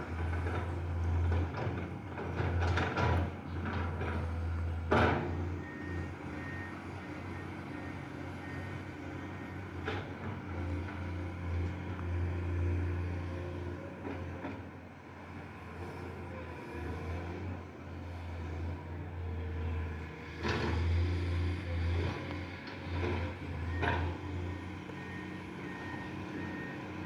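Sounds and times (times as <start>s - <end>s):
excavator engine running: 16.1s - 27.0s.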